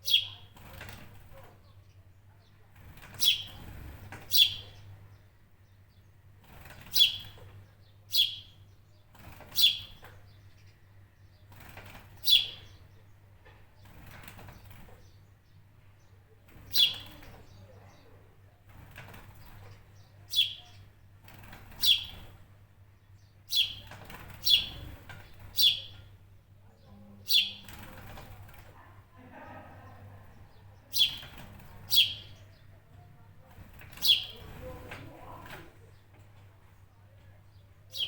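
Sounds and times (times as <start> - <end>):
bird chirping sharply: 0.0 - 0.4, 3.2 - 3.7, 4.3 - 4.8, 6.8 - 7.4, 8.1 - 8.6, 9.5 - 10.0, 20.3 - 20.8, 23.5 - 24.8, 25.6 - 26.1, 27.3 - 27.8, 30.9 - 32.6, 33.9 - 34.6.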